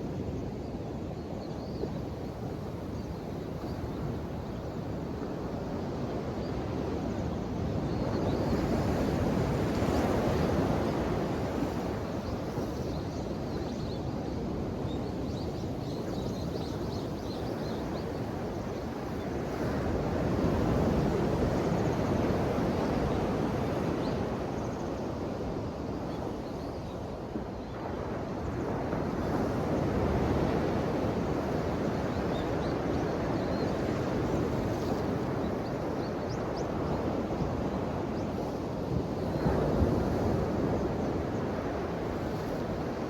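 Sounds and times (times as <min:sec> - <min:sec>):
ocean waves washing onto shore: 0:27.1 - 0:43.0.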